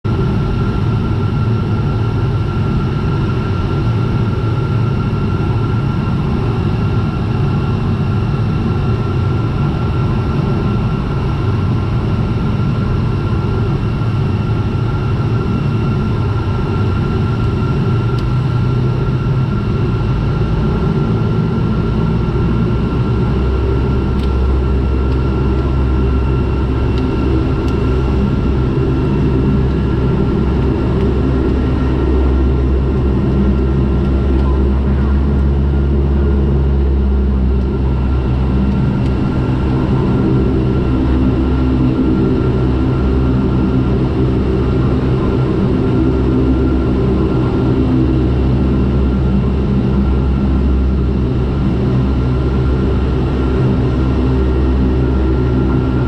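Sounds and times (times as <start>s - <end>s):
turboprop engine and propeller drone: 0.0s - 56.0s.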